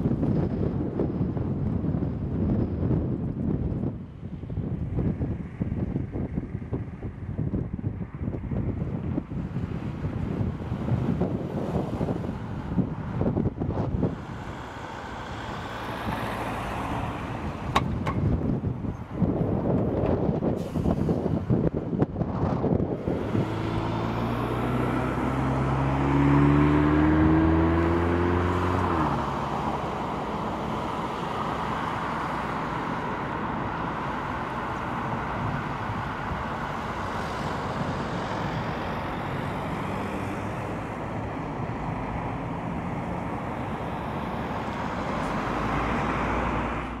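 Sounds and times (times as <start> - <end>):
road and traffic noise: 0.0 - 47.0
car engine accelerating: 9.6 - 18.4, 22.3 - 47.0.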